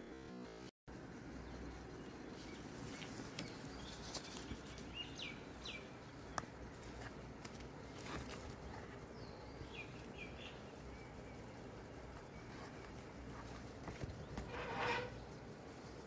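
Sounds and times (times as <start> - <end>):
outdoor background noise: 0.0 - 16.0
bird chirps: 1.4 - 6.4, 9.1 - 11.6.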